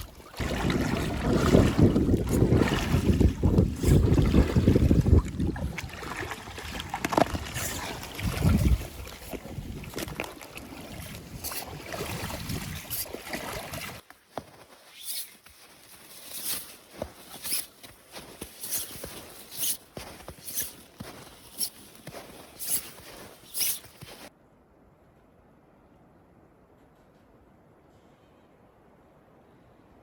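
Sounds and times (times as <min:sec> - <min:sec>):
wind on microphone: 0:00.0 - 0:06.2, 0:07.3 - 0:10.2, 0:10.9 - 0:13.1
footsteps crunching in snow: 0:14.0 - 0:24.3.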